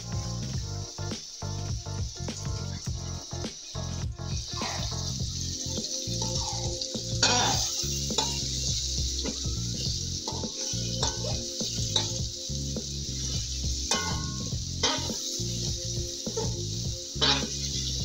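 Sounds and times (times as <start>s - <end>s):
fish sizzling in a pan: 0.0s - 18.0s
metal spatula scraping a pan: 4.5s - 18.0s.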